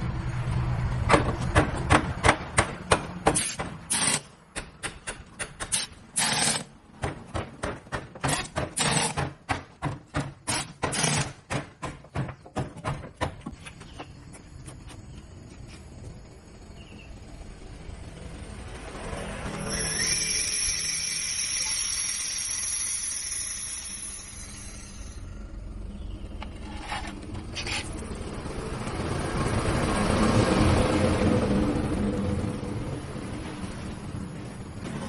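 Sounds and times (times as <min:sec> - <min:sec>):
sharp knocks: 0:07.0 - 0:13.6.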